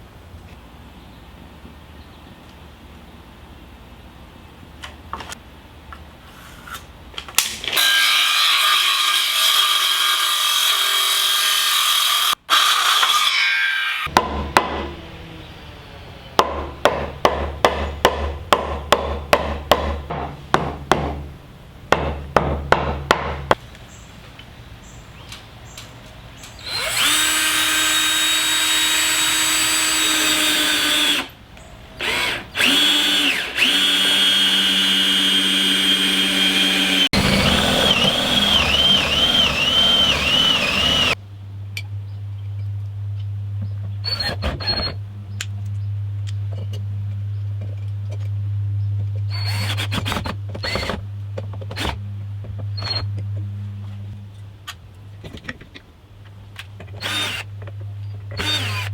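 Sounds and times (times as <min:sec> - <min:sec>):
power drill running: 0:26.6 - 0:31.3, 0:32.0 - 0:41.2, 0:49.4 - 0:50.9, 0:57.0 - 0:57.5, 0:58.4 - 0:58.9.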